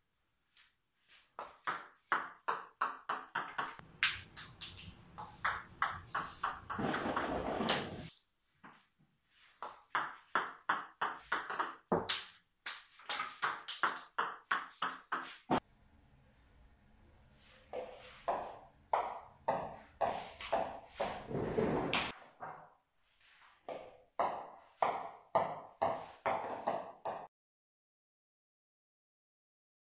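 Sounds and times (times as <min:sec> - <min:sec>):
table tennis balls clicking: 0:01.4 - 0:08.1, 0:09.6 - 0:15.4.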